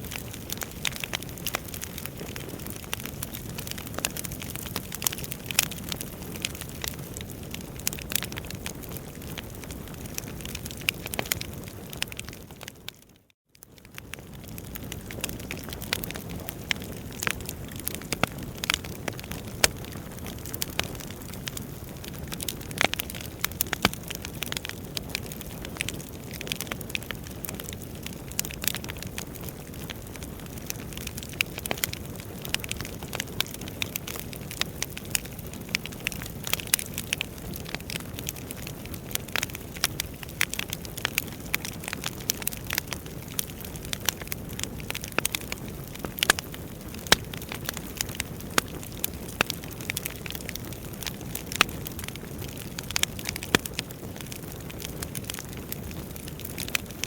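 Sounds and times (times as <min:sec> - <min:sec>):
logs crackling and popping: 0:00.0 - 0:57.0
fire flames rushing: 0:14.3 - 0:34.3.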